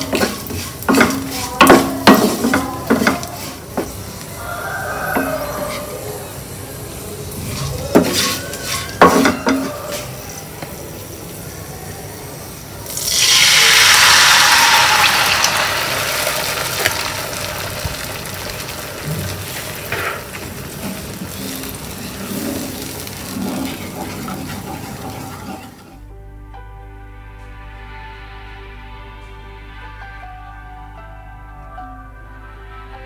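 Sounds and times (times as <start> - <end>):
wooden spatula scraping pan: 0.0 - 4.2, 7.3 - 10.2, 19.0 - 26.0
egg sizzling in hot pan: 0.0 - 11.9, 12.6 - 26.0.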